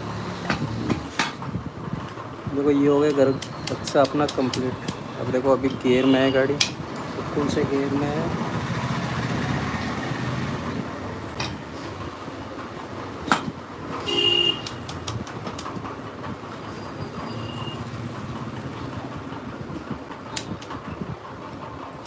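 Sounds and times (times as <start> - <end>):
metal clicks and knocks: 3.1 - 6.0, 6.6 - 7.1, 11.3 - 11.7, 13.2 - 14.0, 14.6 - 16.0
brief squeal: 16.6 - 17.9.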